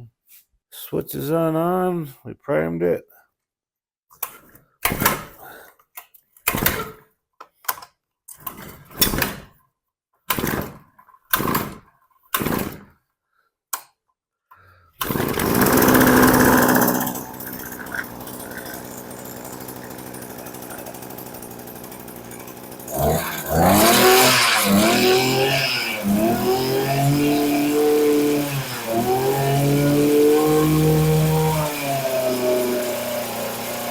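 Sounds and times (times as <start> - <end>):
recoil starter pulls: 15.0 - 33.9
two-stroke engine running and revving: 15.1 - 33.9.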